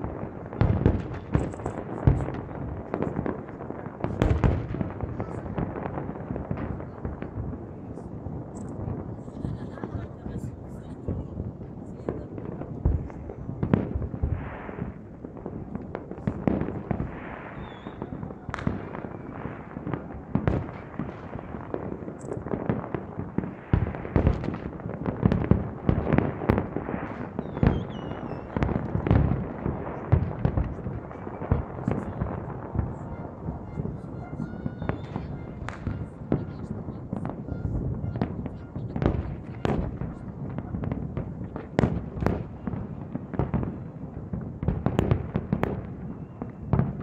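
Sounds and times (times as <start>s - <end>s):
firework shells booming: 0.0s - 10.5s, 11.1s - 47.0s
firework whistles: 17.4s - 19.4s, 27.1s - 28.8s, 32.9s - 36.2s, 45.9s - 47.0s.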